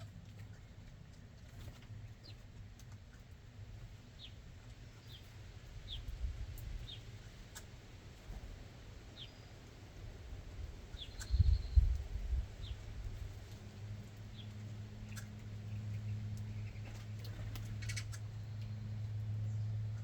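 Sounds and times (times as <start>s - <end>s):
small birds chirping: 0.0s - 20.0s
steady low rumble: 10.0s - 20.0s.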